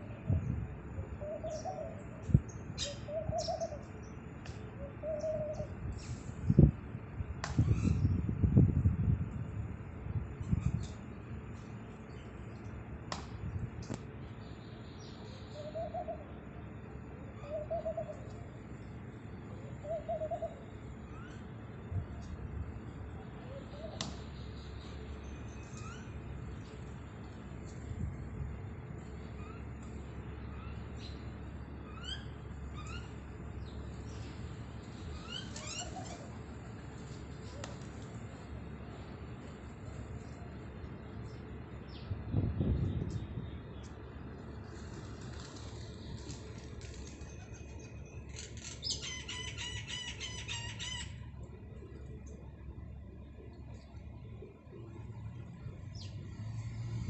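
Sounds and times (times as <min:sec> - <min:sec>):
steady low rumble: 0:00.0 - 0:15.4, 0:18.1 - 0:35.3, 0:35.9 - 0:48.7
pigeon cooing: 0:02.8 - 0:03.8, 0:04.8 - 0:05.8, 0:15.6 - 0:16.4, 0:17.3 - 0:18.5, 0:19.7 - 0:20.7, 0:23.2 - 0:24.2, 0:35.2 - 0:36.4
small birds chirping: 0:29.0 - 0:36.4.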